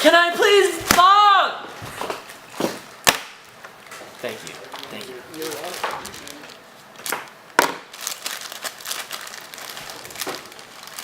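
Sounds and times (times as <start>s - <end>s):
sharp snap: 3.0s - 3.4s
package wrapping crinkling and tearing: 4.6s - 11.0s.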